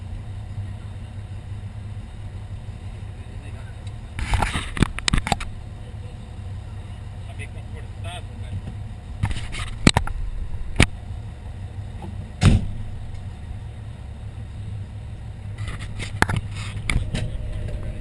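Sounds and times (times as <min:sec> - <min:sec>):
fire engine idling: 0:00.0 - 0:18.0
sharp knocks and clicks: 0:08.6 - 0:11.0
heavy thump: 0:12.0 - 0:12.9, 0:16.9 - 0:18.0.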